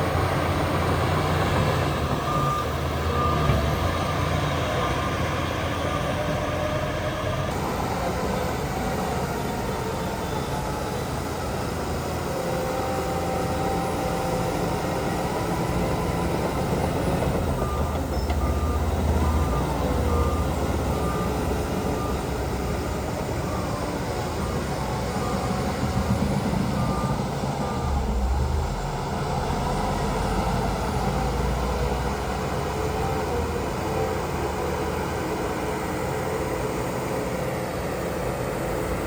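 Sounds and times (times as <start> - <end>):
heavy diesel machinery running: 0.0 - 39.0
reversing alarm beeps: 0.4 - 6.8, 7.6 - 31.8.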